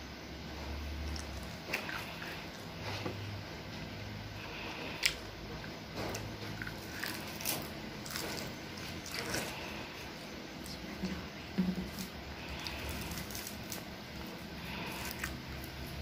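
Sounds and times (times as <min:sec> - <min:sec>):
child chewing crisp seaweed: 0:00.6 - 0:16.0
crackles and snaps: 0:11.9 - 0:15.9.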